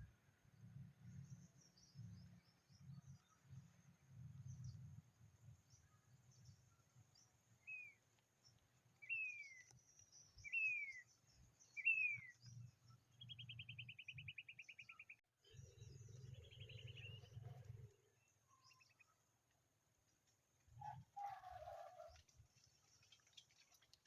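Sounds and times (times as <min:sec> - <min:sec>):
bird chirping and trilling: 0:11.7 - 0:12.4.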